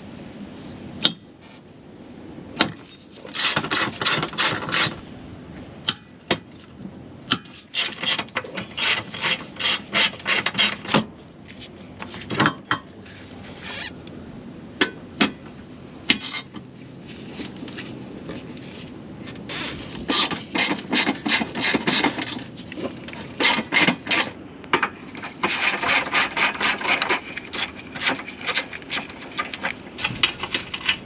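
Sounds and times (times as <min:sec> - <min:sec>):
sharp clicks and knocks: 0:19.3 - 0:31.0.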